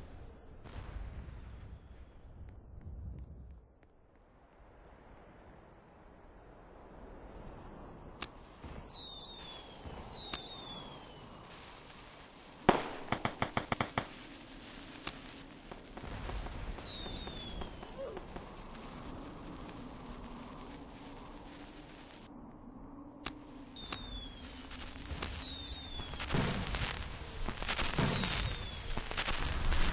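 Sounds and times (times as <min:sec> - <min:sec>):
firework whistles: 0:08.6 - 0:22.3, 0:23.7 - 0:29.9
firework pops: 0:09.8 - 0:10.9, 0:12.6 - 0:14.2, 0:15.0 - 0:18.6, 0:23.2 - 0:29.9
firecracker cracks: 0:12.6 - 0:14.3, 0:15.0 - 0:18.8, 0:23.8 - 0:29.9
loud firework bang: 0:16.0 - 0:18.5, 0:25.1 - 0:27.2, 0:27.8 - 0:29.9.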